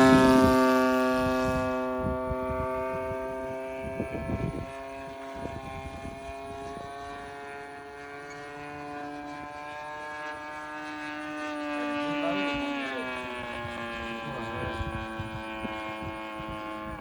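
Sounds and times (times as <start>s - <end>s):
wind gusts on microphone: 0.0s - 7.5s, 11.2s - 17.0s
model airplane engine buzzing: 0.0s - 17.0s.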